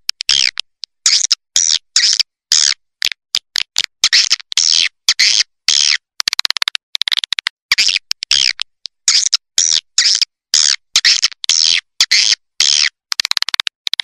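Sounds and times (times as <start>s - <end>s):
rapid clicks: 6.2s - 8.9s, 13.1s - 14.0s
harsh bird chirping calls: 9.1s - 12.9s.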